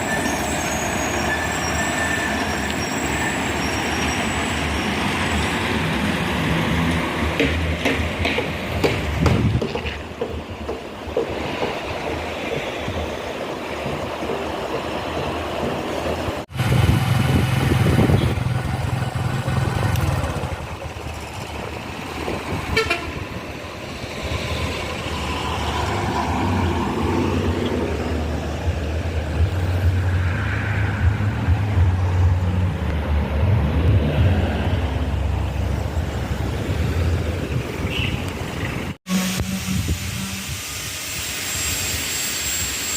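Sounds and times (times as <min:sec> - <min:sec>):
heavy vehicle engines humming: 0:16.4 - 0:40.5
vehicle horn: 0:22.7 - 0:23.2, 0:39.1 - 0:40.6.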